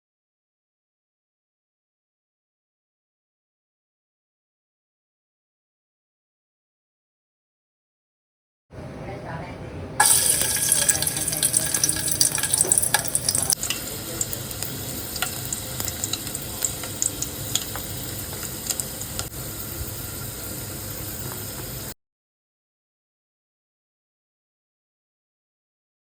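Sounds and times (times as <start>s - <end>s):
food sizzling in hot oil: 10.0s - 22.0s.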